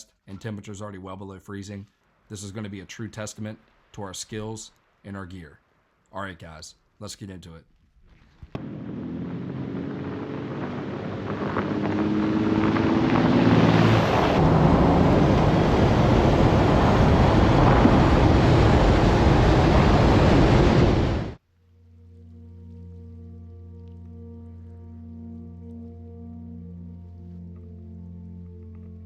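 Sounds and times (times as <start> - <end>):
vehicle engine accelerating: 8.6 - 21.4
wind rushing on microphone: 8.6 - 21.4.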